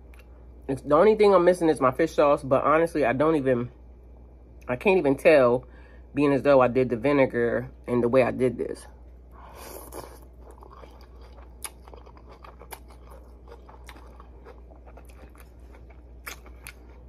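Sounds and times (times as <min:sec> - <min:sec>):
low steady hum: 0:00.0 - 0:17.0
person chewing noodles: 0:09.4 - 0:17.0.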